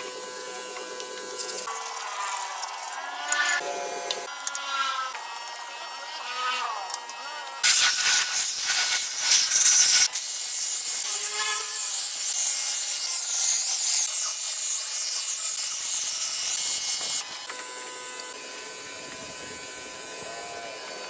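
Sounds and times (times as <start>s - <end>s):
pressure washer spraying: 7.6s - 17.2s.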